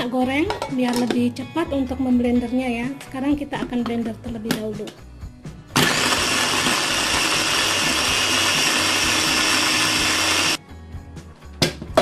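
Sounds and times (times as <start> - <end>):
electric blender grinding: 5.8 - 10.6.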